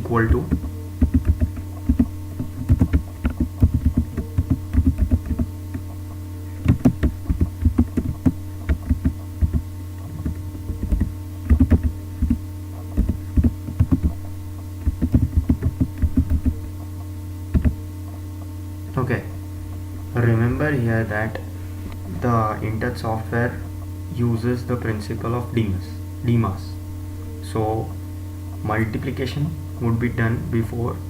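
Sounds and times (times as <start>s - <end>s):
low electrical hum: 0.0s - 31.0s
computer keyboard typing: 0.4s - 6.0s, 6.6s - 12.4s, 13.0s - 14.2s, 14.8s - 16.7s, 17.5s - 17.8s.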